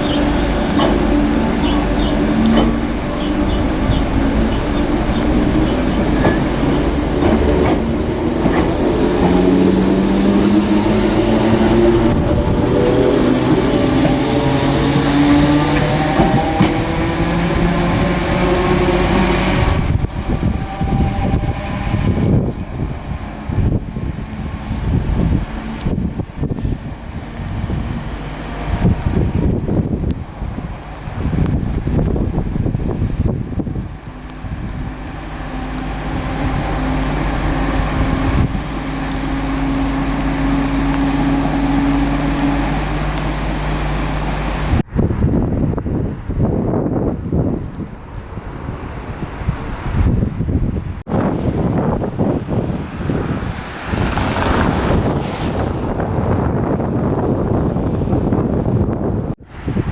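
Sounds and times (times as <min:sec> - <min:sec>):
vehicle engine humming: 0:00.0 - 0:44.9
electric train whine and rumble: 0:00.0 - 0:59.9.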